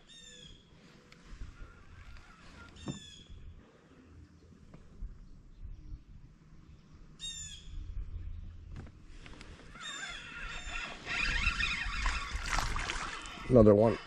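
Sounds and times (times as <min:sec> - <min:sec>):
harsh falling bird call: 0:09.7 - 0:13.5
chattering bird calls: 0:09.7 - 0:14.0
wash of noise: 0:12.0 - 0:13.6.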